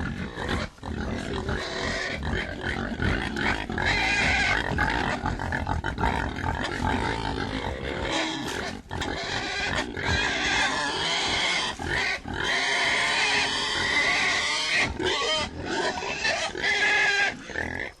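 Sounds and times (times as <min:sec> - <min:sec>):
pigs grunting: 0:00.0 - 0:18.0
pigs squealing: 0:00.0 - 0:18.0.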